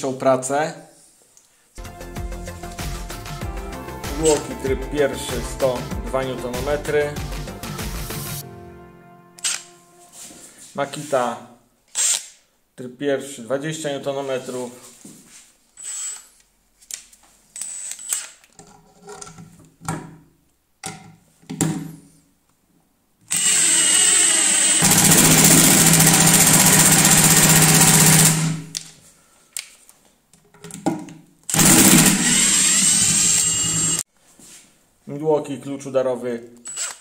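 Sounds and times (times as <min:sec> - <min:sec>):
impact drivers hammering screws: 0:23.3 - 0:28.8, 0:31.5 - 0:34.0.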